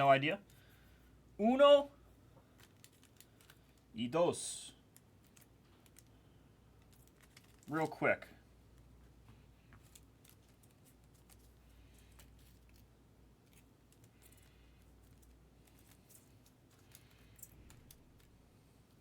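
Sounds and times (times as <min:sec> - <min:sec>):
foil packs clicking and rustling: 0:02.5 - 0:03.8, 0:06.8 - 0:08.0.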